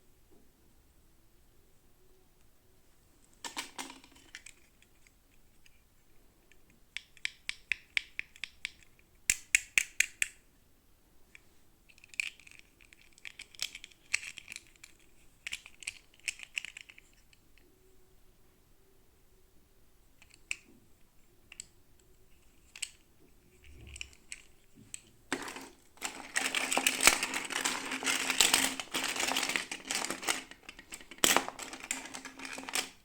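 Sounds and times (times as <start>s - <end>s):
plastic packaging crinkling and clicking: 3.4s - 5.0s, 23.6s - 33.0s.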